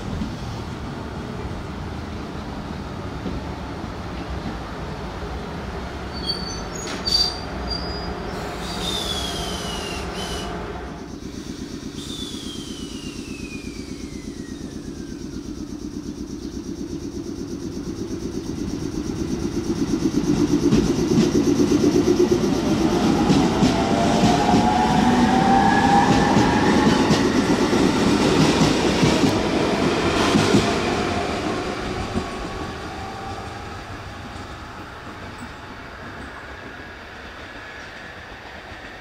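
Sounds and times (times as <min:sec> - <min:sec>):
high whines falling in pitch: 0:08.8 - 0:34.5
train wheels clattering: 0:20.2 - 0:32.8.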